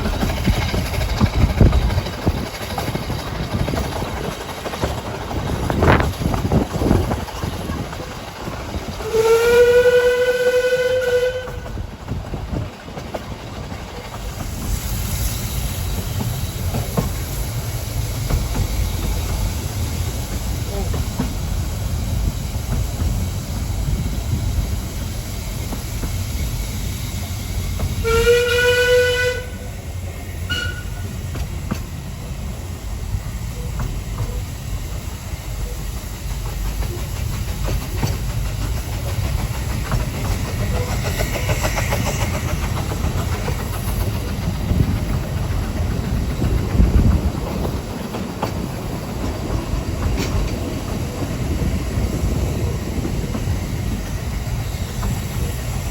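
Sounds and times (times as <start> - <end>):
train wheels clattering on rail: 0.0 - 55.9
train whistle: 9.0 - 11.8, 28.0 - 29.8, 30.4 - 31.1.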